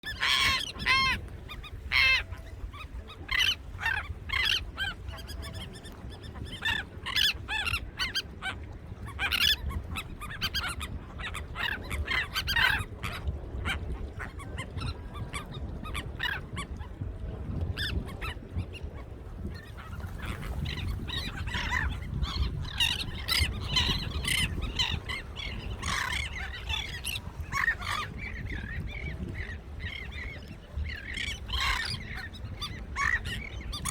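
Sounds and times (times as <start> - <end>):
flock of birds calling: 0.0 - 8.3, 19.6 - 33.9.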